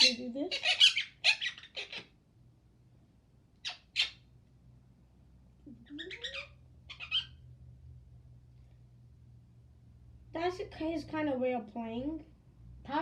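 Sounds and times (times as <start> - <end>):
parrot squawking: 0.0 - 2.2, 3.6 - 4.3, 5.7 - 7.4.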